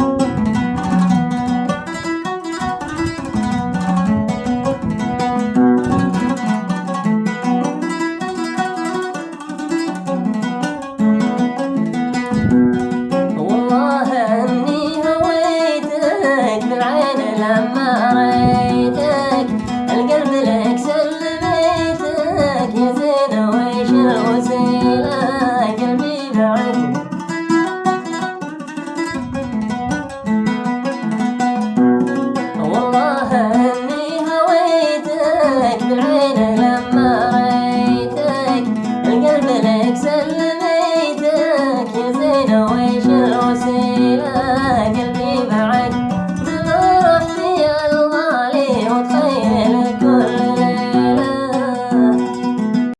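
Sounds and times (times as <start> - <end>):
plucked string instrument: 0.0 - 52.9
man singing: 13.4 - 26.9, 32.6 - 52.3.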